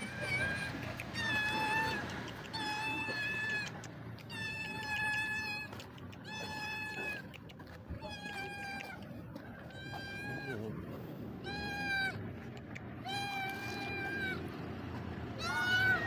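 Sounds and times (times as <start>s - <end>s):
cat meowing: 0.0s - 7.3s, 7.9s - 9.0s, 9.6s - 10.7s, 11.4s - 12.2s, 13.0s - 14.6s, 15.4s - 16.0s.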